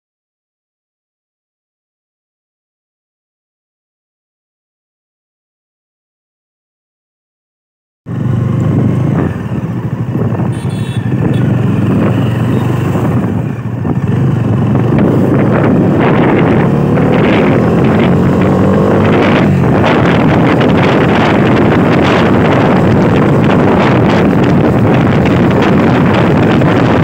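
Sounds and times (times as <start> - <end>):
motorcycle engine accelerating: 8.1 - 27.0
wind buffeting microphone: 8.1 - 27.0.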